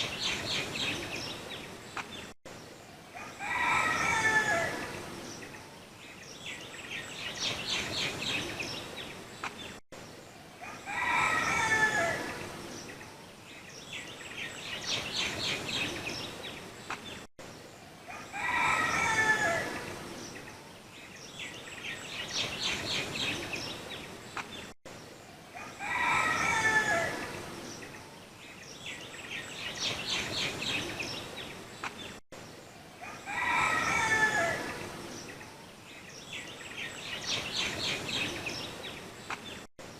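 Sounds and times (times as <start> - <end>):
rooster crowing: 3.2 - 4.9, 10.6 - 12.3, 18.1 - 19.8, 25.6 - 27.3, 33.0 - 34.8.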